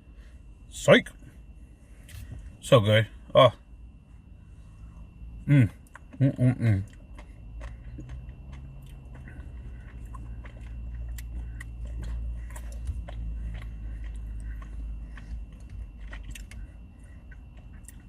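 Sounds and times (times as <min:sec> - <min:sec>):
low steady hum: 0:00.0 - 0:18.0
chewing ice cream: 0:04.7 - 0:18.0.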